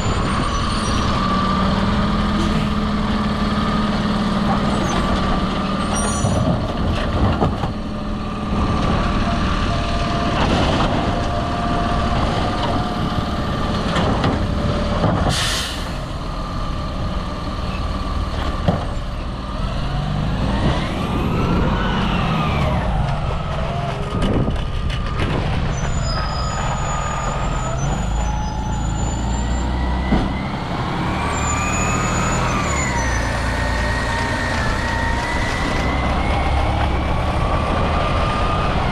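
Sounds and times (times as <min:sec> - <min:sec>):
garbage truck engine revving: 0:00.0 - 0:38.9
air brake hiss: 0:15.3 - 0:16.1.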